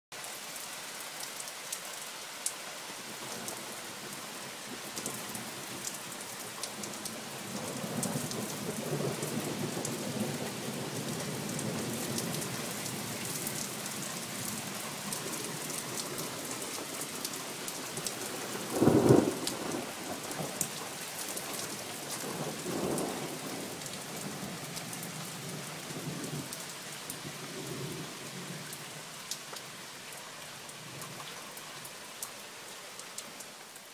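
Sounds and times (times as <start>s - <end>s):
steady rain falling: 0.1s - 33.9s
rolling thunder: 18.6s - 20.6s.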